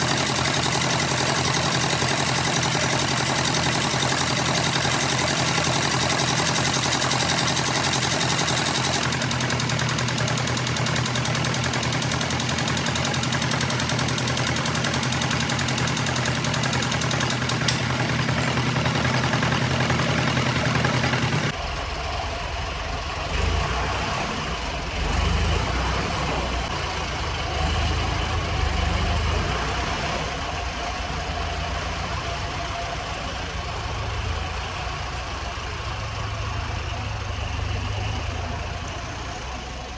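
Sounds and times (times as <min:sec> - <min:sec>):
diesel engine running: 0:00.0 - 0:23.6.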